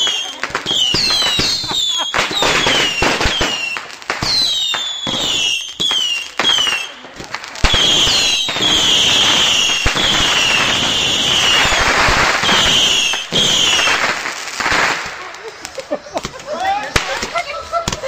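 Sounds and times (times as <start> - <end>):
firework whistles: 0.0 - 7.0, 7.6 - 15.2
firework hissing and crackling: 0.0 - 18.0.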